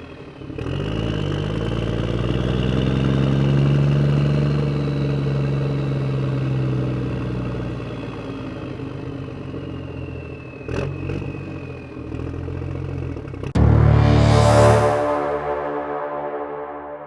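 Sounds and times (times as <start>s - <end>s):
high whine falling in pitch: 13.6s - 17.0s.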